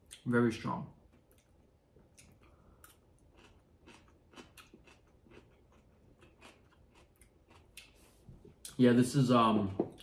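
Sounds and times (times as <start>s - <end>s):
faint chewing crunches: 1.0s - 8.8s.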